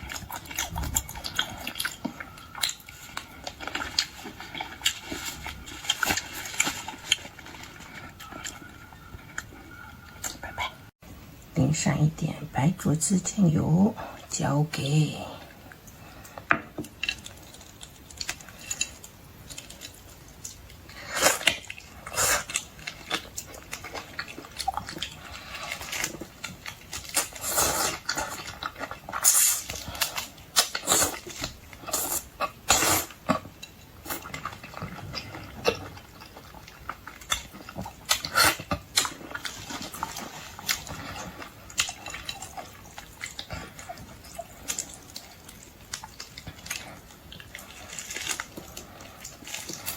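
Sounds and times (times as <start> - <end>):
chewing: 0.0 - 10.9, 15.3 - 49.9
shells crackling as peeled: 16.8 - 49.9.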